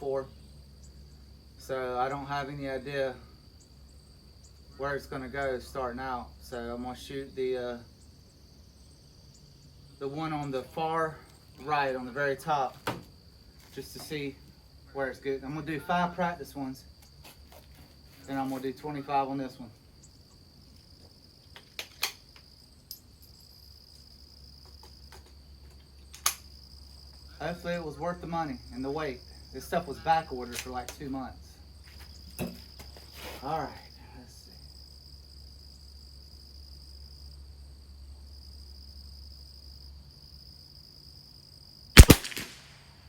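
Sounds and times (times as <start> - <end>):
insects trilling: 0.0 - 42.7
crickets chirping: 0.0 - 43.0
rifle shot: 42.0 - 43.0.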